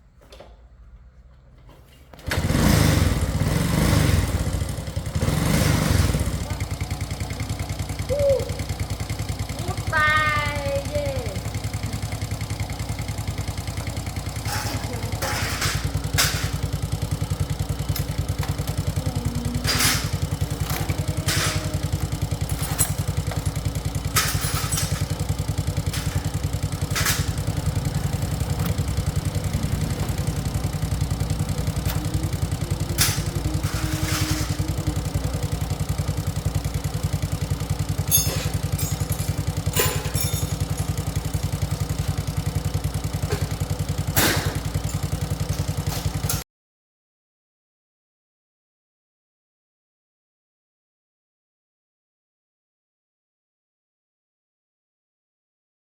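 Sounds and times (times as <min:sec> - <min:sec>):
motorcycle engine idling: 0:02.2 - 0:46.4.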